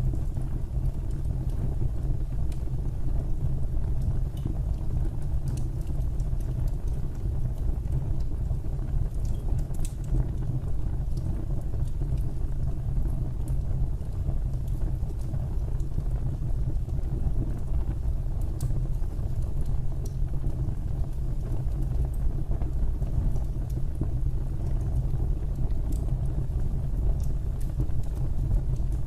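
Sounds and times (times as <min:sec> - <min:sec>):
fire crackles and pops: 0:00.0 - 0:29.0
fireplace fire rumbling: 0:00.0 - 0:29.0.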